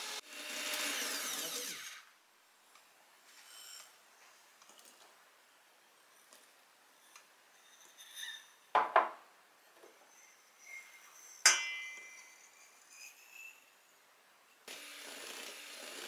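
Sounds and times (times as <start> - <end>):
kitchenware clinking: 7.7 - 13.6.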